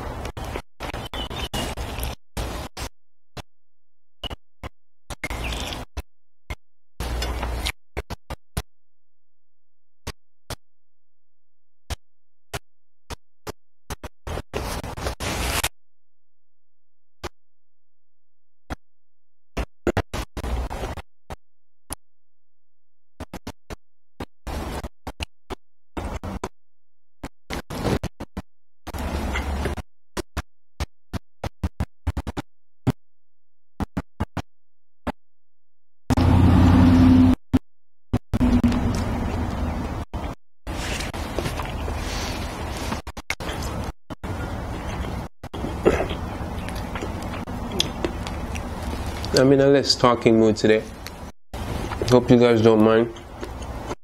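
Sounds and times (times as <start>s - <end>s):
chewing crispy fried chicken: 40.7s - 49.6s, 50.9s - 52.2s.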